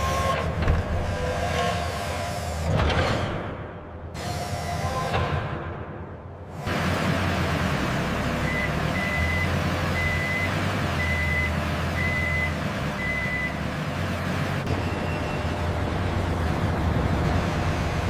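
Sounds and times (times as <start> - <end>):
truck engine running: 6.5 - 18.0
truck reversing alarm beeps: 8.4 - 13.7.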